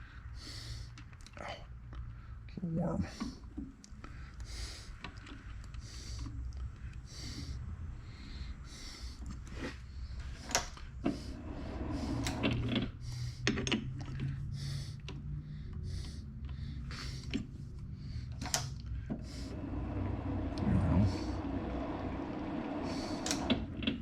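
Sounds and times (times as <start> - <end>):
low steady hum: 13.2 - 23.6.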